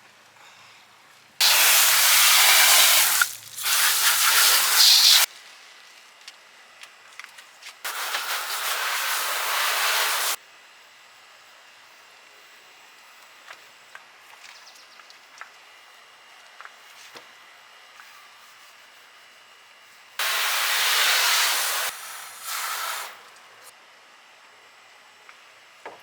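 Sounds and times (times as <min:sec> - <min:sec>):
water spraying from hose: 0:01.4 - 0:05.3, 0:07.9 - 0:10.4, 0:20.2 - 0:23.2.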